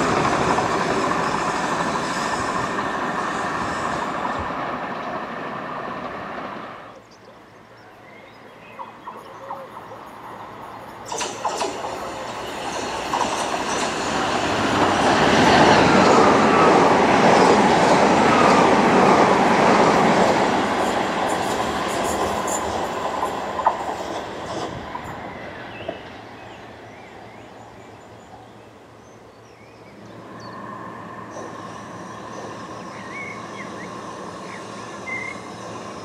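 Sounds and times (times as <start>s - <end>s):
train wheels on rails: 0.0s - 7.0s, 8.9s - 28.1s, 29.9s - 36.0s
train falling whine: 10.9s - 26.3s.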